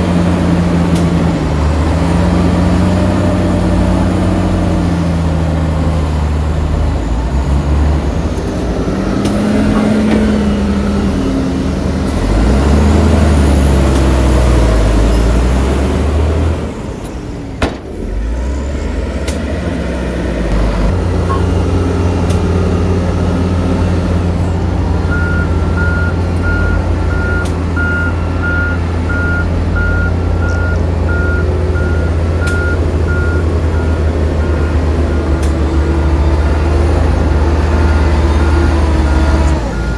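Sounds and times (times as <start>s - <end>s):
diesel construction machinery engine: 0.0s - 39.9s
reversing alarm beeping: 21.2s - 21.7s, 25.0s - 39.9s.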